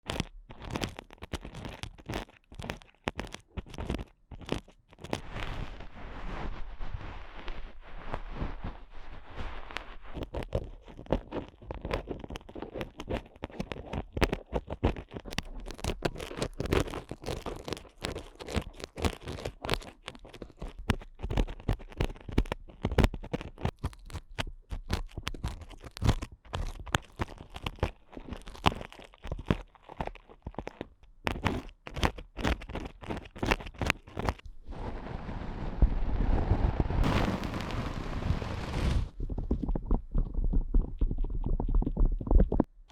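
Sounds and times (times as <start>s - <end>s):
ear picks scraping a microphone: 0.1s - 42.9s
low rumble: 34.5s - 42.0s.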